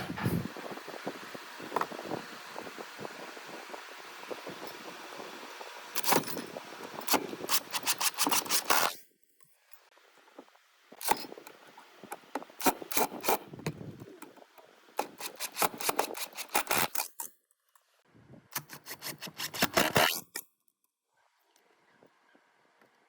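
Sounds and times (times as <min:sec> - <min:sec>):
rubbing and scraping on wood: 0:07.0 - 0:09.0, 0:15.0 - 0:17.2.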